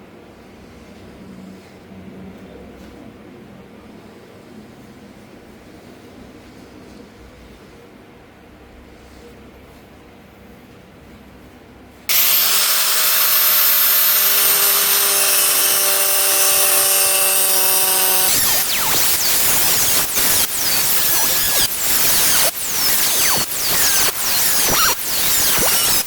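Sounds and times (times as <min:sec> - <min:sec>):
power tool running: 0:12.1 - 0:26.0.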